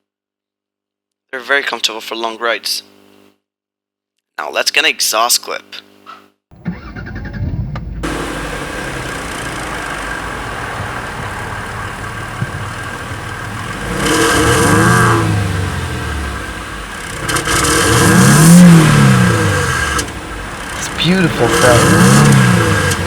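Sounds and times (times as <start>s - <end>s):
car exhaust idling and revving: 6.5s - 23.0s.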